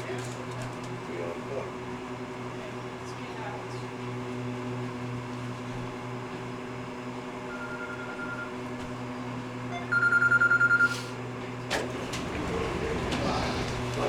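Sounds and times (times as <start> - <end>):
electric hum of tram: 0.0 - 14.0.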